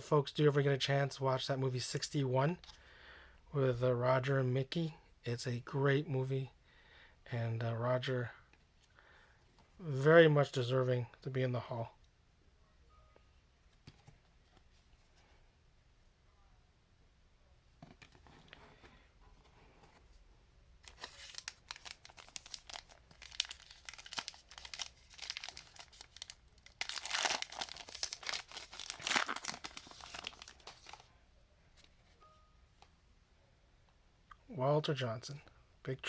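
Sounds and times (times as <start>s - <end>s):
wrapper tearing and crinkling: 20.9s - 31.1s.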